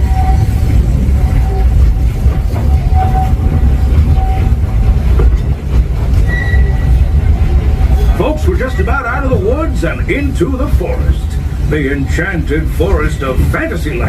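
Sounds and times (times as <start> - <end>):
train wheels rumbling on track: 0.0 - 14.0
faint wheel squeals: 6.2 - 7.0.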